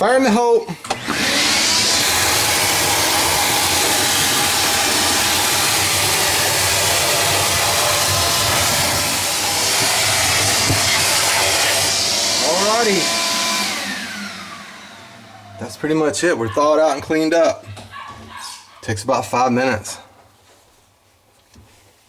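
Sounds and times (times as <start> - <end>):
electric blower rushing air: 0.8 - 16.2.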